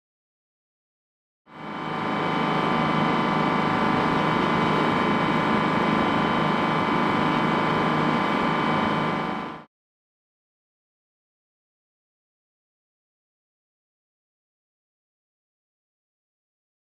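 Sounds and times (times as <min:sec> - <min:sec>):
machine humming: 0:01.5 - 0:09.7.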